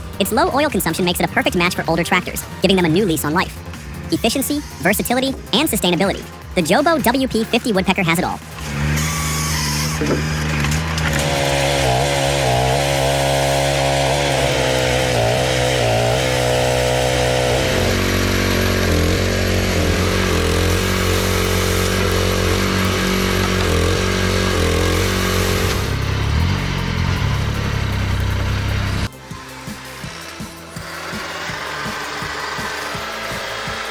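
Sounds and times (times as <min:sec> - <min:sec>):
motor-driven machine running: 0:08.4 - 0:29.1.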